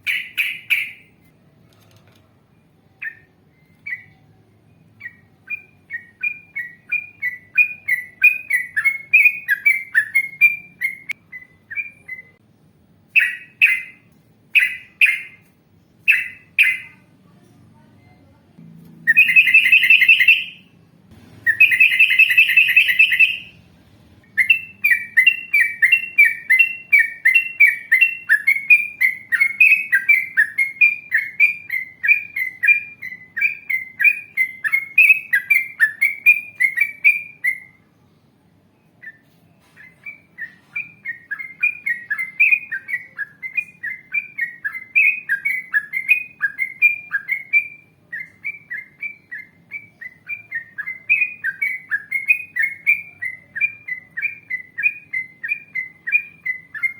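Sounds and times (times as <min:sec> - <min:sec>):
bulbul singing rapid notes: 0:18.6 - 0:28.5.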